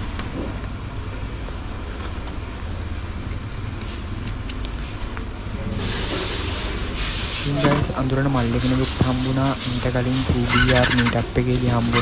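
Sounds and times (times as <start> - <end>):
road noise: 0.1 - 12.0
vehicle engine rumbling: 6.7 - 12.0.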